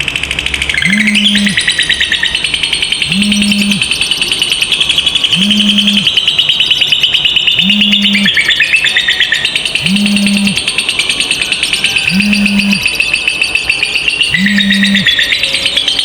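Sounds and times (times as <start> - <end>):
lovebird chattering trill: 0.0 - 16.0
low hum: 3.0 - 3.9.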